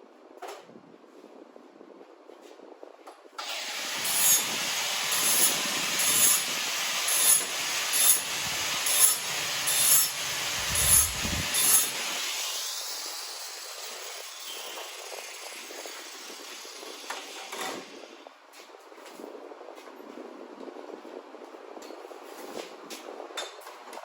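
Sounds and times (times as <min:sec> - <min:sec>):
grinder on steel: 0:03.4 - 0:18.2.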